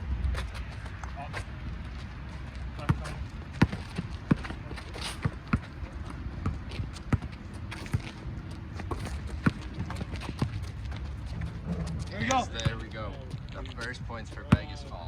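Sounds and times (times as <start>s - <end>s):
running footsteps: 0.3s - 15.0s
basketball bouncing: 2.8s - 8.2s, 8.8s - 11.1s.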